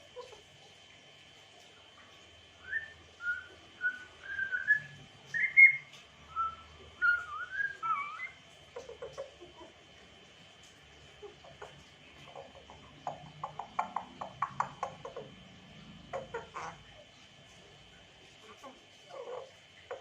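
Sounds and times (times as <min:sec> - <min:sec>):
parrot whistling: 0:02.6 - 0:08.4.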